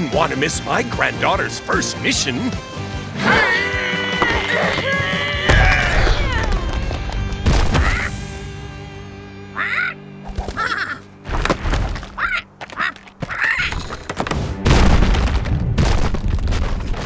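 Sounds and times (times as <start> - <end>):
background music: 0.0 - 16.1
cartoon ostrich honking squawks: 9.5 - 11.1, 12.1 - 13.8.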